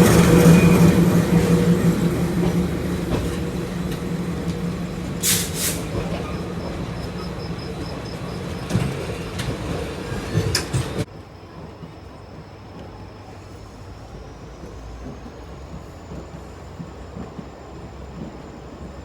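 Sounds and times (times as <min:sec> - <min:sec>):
rumble of train coaches: 0:00.0 - 0:19.0
train engine hum: 0:00.0 - 0:19.0.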